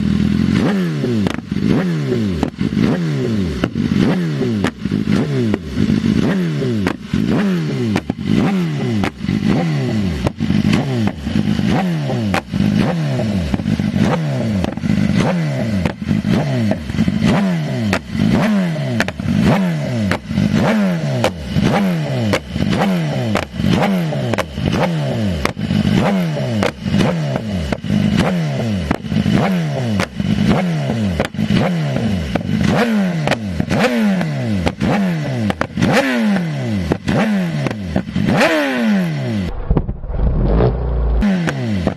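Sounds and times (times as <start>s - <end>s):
motorcycle engine revving: 0.0s - 41.9s
exhaust pops and crackles: 13.5s - 16.2s, 22.3s - 23.7s, 25.4s - 26.0s, 26.6s - 29.4s, 31.2s - 31.4s, 39.5s - 41.9s.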